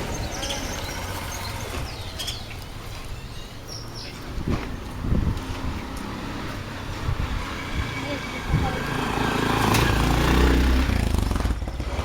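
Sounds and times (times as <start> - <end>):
small birds chirping: 0.0 - 5.0.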